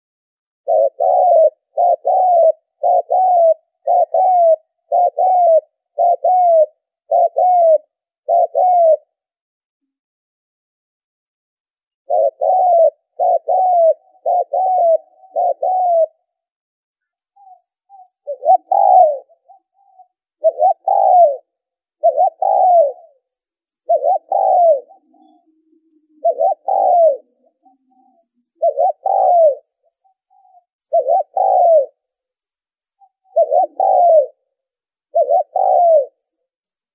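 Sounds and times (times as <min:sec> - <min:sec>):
dove cooing: 0:00.6 - 0:09.2, 0:12.1 - 0:16.4, 0:17.4 - 0:32.1, 0:33.1 - 0:36.4
faint high bird chirps: 0:12.1 - 0:36.9.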